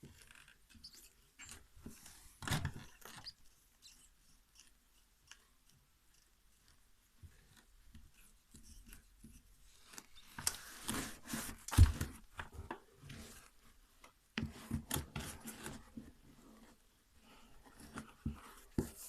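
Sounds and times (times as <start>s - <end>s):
rubbing and scraping of a shoe: 6.7s - 12.3s, 14.4s - 19.0s.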